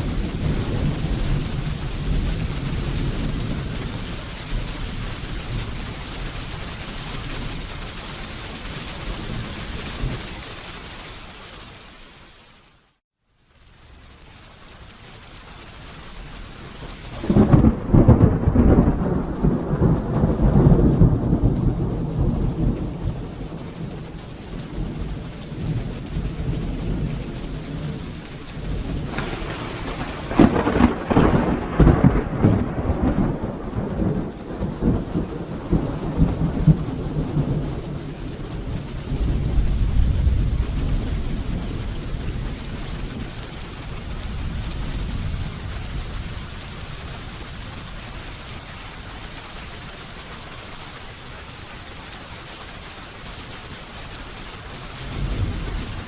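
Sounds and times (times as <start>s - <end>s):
thunder rumbling: 0.0s - 10.4s, 16.4s - 48.8s, 54.8s - 56.0s
steady rain: 0.0s - 56.0s.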